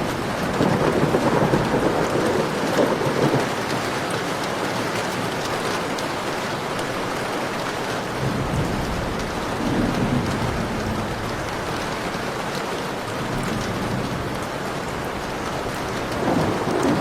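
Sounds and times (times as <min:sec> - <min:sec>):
low rumble of thunder: 0:00.0 - 0:03.8, 0:08.2 - 0:17.0
heavy rain pouring: 0:00.0 - 0:17.0.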